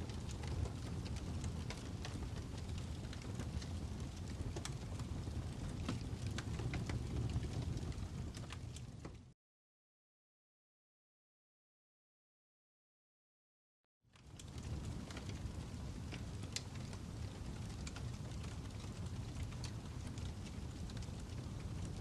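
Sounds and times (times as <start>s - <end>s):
fire crackling with pops: 0.0s - 9.3s, 14.1s - 22.0s.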